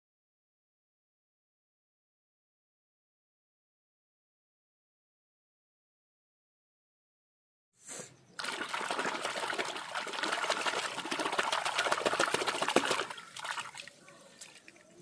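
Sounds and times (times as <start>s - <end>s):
water running and splashing: 8.4s - 15.0s.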